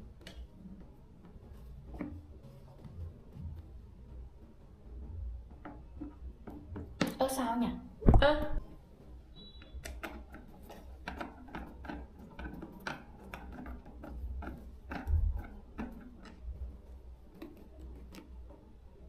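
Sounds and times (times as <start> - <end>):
clicks and taps of hand tools: 9.7 - 16.5.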